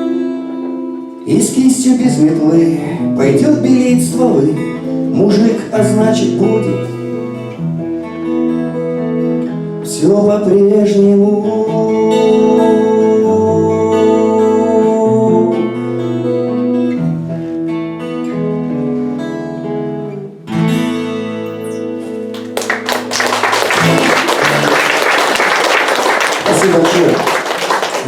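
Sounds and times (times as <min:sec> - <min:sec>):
acoustic guitar chords: 0:00.0 - 0:28.0
audience applause: 0:22.4 - 0:28.0.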